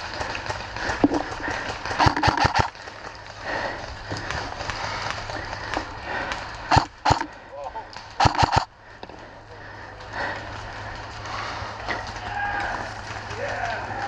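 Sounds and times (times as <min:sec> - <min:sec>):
jogging footsteps: 0:00.0 - 0:14.0
sharp cracks: 0:00.2 - 0:03.2, 0:06.2 - 0:08.7.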